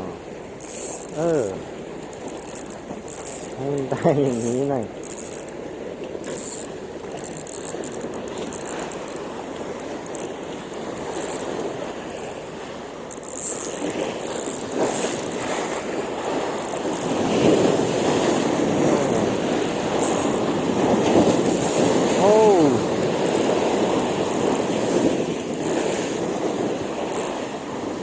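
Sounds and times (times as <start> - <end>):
waves washing on shore: 0.0 - 28.0
wind buffeting microphone: 6.8 - 28.0.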